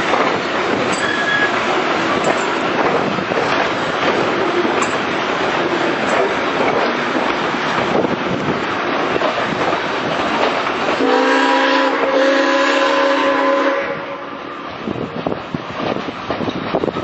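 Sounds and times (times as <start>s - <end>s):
steam locomotive running: 0.0s - 17.0s
steam whistle chord: 11.0s - 14.5s.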